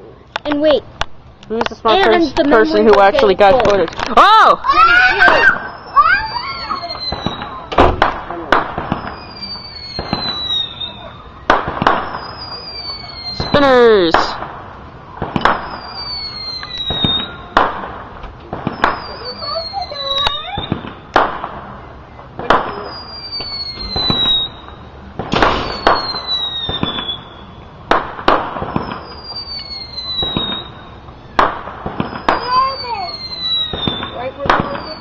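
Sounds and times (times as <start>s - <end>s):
firework bangs and cracks: 0.3s - 35.0s
firework whistle sliding down: 4.8s - 7.7s, 8.9s - 11.3s, 15.6s - 17.6s, 18.7s - 20.8s, 22.8s - 24.8s, 25.6s - 27.5s, 28.8s - 30.9s, 32.1s - 35.0s.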